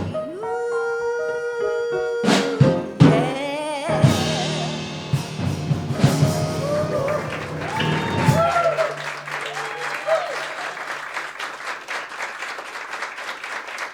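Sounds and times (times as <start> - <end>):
sharp drum hits: 4.0 - 9.0.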